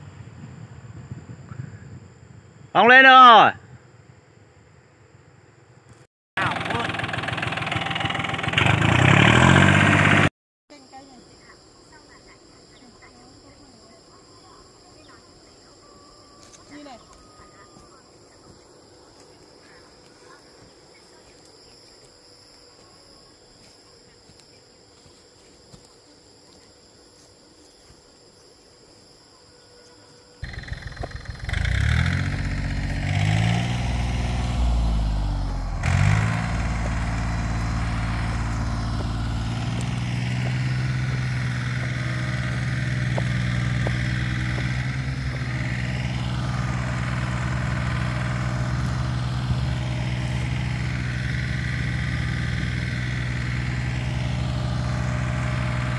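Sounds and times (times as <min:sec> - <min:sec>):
tractor diesel engine revving: 0:06.4 - 0:10.3, 0:30.4 - 0:55.9.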